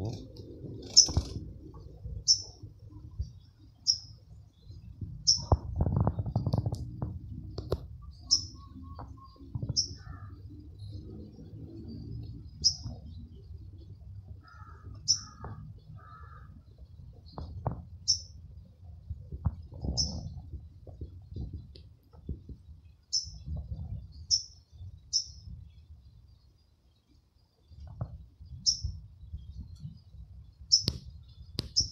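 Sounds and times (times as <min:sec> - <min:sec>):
small bird chirping: 0:00.0 - 0:01.5, 0:02.1 - 0:06.7, 0:08.0 - 0:10.4, 0:11.3 - 0:13.6, 0:14.4 - 0:18.4, 0:19.7 - 0:20.5, 0:22.8 - 0:31.9.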